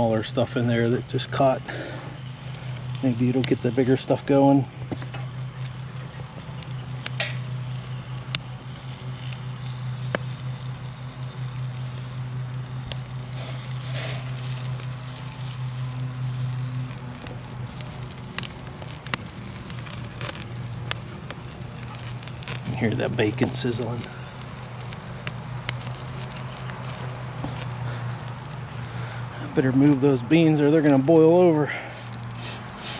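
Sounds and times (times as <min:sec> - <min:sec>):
bacon sizzling in a pan: 0:00.0 - 0:29.2
campfire crackling and popping: 0:00.0 - 0:32.9
low hum: 0:00.0 - 0:32.9.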